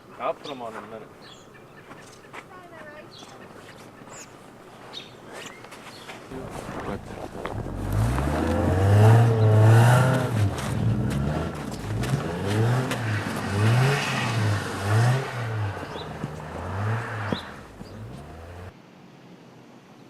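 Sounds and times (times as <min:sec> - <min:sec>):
car engine revving: 0:06.3 - 0:18.7.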